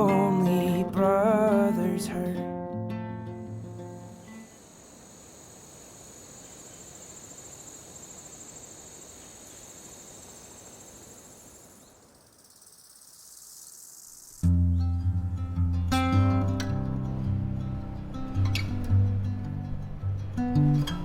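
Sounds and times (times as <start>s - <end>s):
ambient hiss: 3.3s - 14.6s
insect chorus drone: 3.3s - 14.6s.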